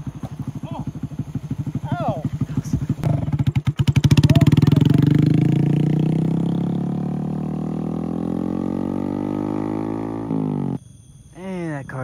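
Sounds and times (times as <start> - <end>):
motorcycle engine pulling away: 0.0 - 10.8.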